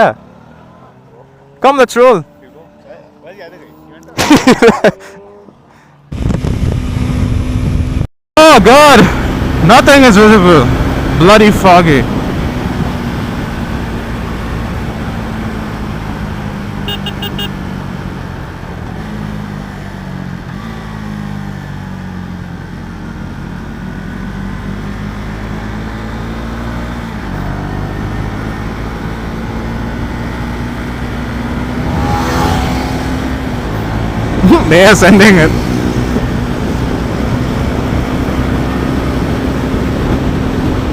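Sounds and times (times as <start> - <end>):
motorcycle engine cruising: 0.0 - 40.9
wind noise on microphone: 6.1 - 8.1.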